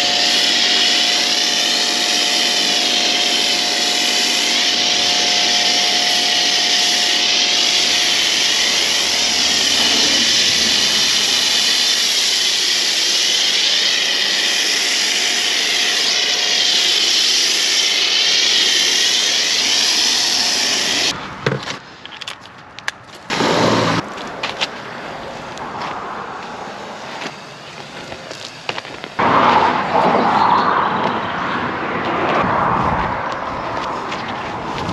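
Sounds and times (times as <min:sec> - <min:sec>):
detailing machine hissing: 0:00.0 - 0:21.1.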